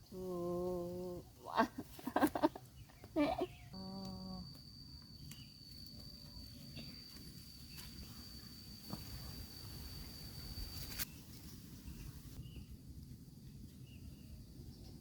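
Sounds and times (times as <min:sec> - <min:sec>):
high-pitched insect call: 0:02.1 - 0:11.2.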